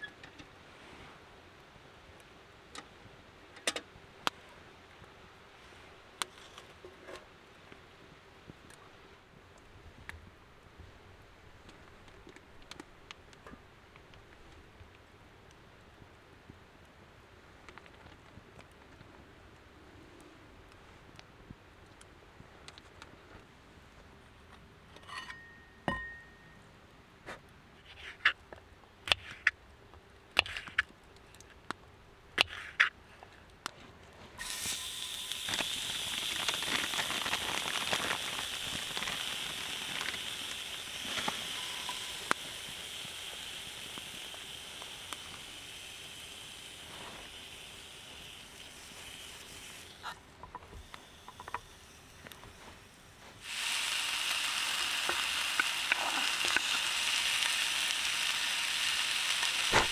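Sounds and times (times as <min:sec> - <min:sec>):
cookware clicks and taps: 0:25.0 - 0:26.4
meat sizzling in a frying pan: 0:34.4 - 0:50.2, 0:50.8 - 0:59.9.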